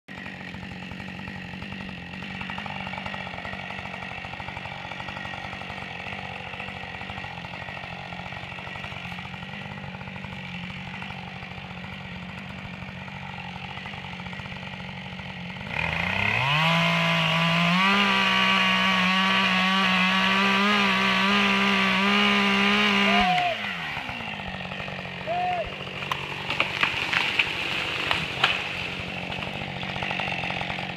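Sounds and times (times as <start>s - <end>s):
chainsaw revving: 0.1s - 30.9s
wood cracking and knocking: 25.7s - 30.9s.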